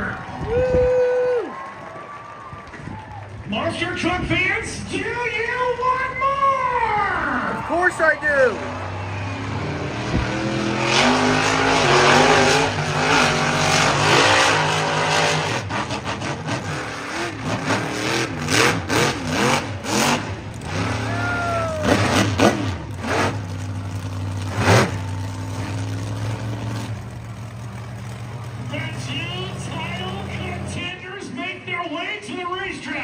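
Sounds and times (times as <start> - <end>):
crowd noise: 0.0 - 33.0
truck engine revving: 7.2 - 31.0.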